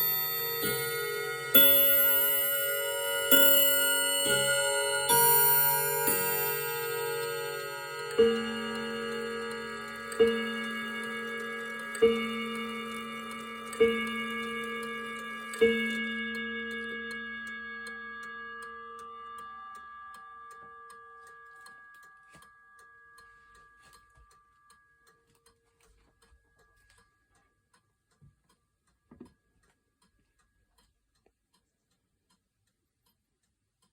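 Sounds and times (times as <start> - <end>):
clock striking gong: 0.0 - 24.4
clock ticking: 0.0 - 33.9.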